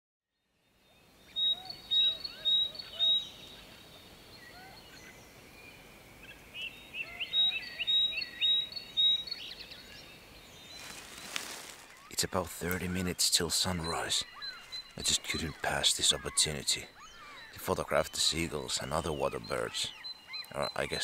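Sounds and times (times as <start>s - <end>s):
faint background hiss: 0.6s - 21.0s
bird call notes: 10.7s - 21.0s.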